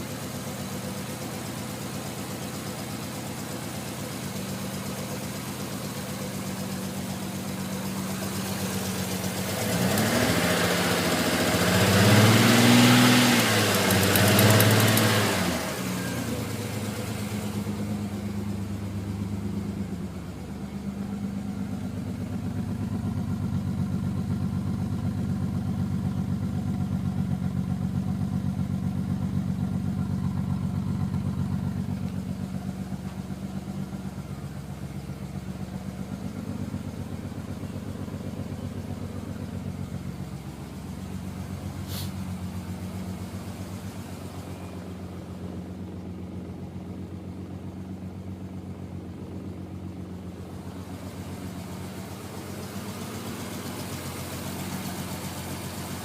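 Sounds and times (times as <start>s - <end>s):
car engine idling and revving: 0.0s - 56.0s
broad hiss: 41.7s - 42.4s.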